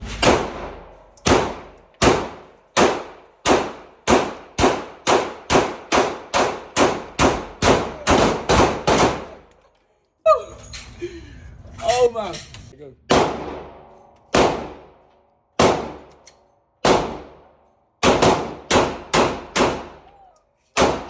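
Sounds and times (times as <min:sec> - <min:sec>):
pistol shots echoing: 0:00.2 - 0:09.5, 0:13.1 - 0:15.0, 0:15.6 - 0:16.2, 0:16.8 - 0:20.1, 0:20.8 - 0:21.0.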